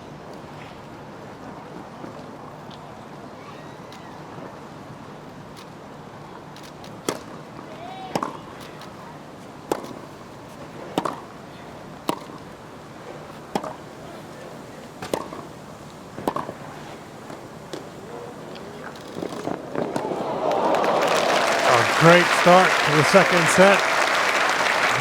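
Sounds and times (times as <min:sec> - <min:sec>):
crowd applause: 0:19.9 - 0:25.0.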